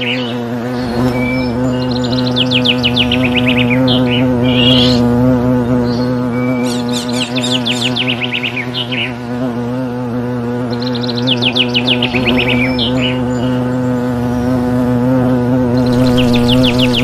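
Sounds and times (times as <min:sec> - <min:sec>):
songbird trilling: 0:00.0 - 0:05.1, 0:05.8 - 0:09.2, 0:10.7 - 0:13.9, 0:15.8 - 0:17.0
low buzzing hum: 0:00.0 - 0:17.0.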